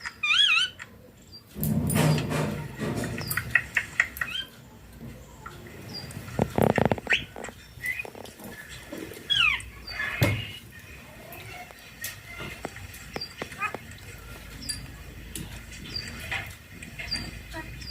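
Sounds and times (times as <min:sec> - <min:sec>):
parakeet chirping and whistling: 0:07.0 - 0:08.1.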